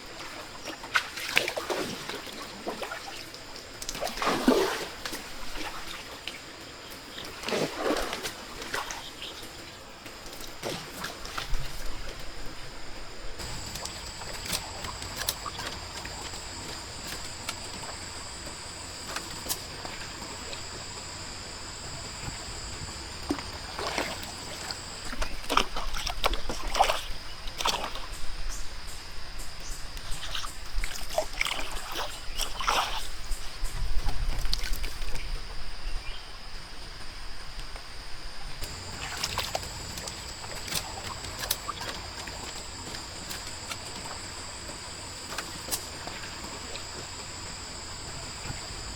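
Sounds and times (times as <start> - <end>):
water splashing and sloshing: 0.0 - 28.4, 30.0 - 35.4, 38.6 - 48.9
high-pitched hum: 13.4 - 26.1, 38.6 - 48.9.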